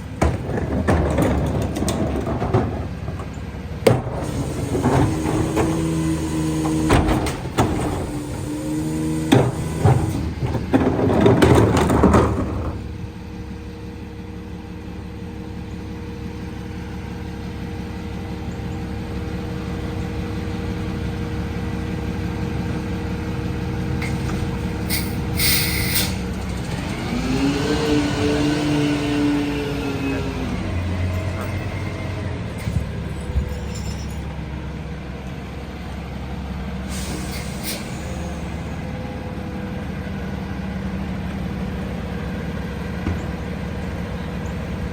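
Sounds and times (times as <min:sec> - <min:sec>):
loud knocks and metal clatter: 0:00.0 - 0:13.0, 0:24.0 - 0:25.3, 0:30.8 - 0:34.4
truck engine running: 0:00.0 - 0:44.9
air brake hiss: 0:24.9 - 0:26.3, 0:36.9 - 0:38.6.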